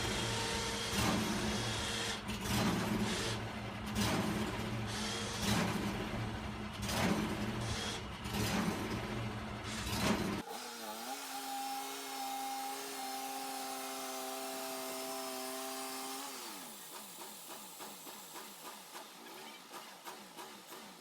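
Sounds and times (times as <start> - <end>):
bandsaw mill humming: 10.4 - 19.3.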